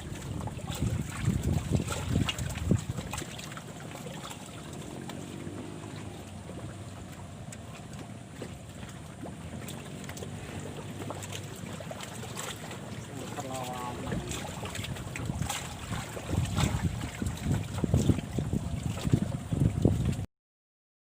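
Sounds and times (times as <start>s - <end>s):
rush of wind: 0.0s - 3.4s, 14.0s - 20.2s
wind buffeting microphone: 0.0s - 7.2s, 13.7s - 20.2s
water lapping: 0.0s - 20.2s.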